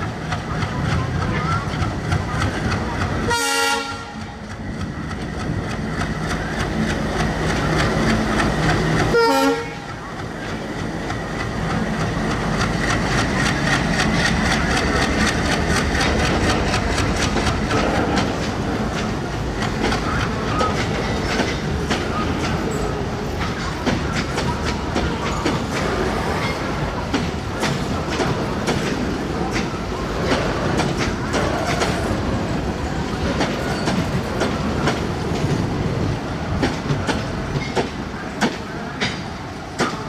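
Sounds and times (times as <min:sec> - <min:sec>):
train wheels clicking on rails: 0:00.0 - 0:40.0
short train horn: 0:03.3 - 0:04.2, 0:09.1 - 0:09.9.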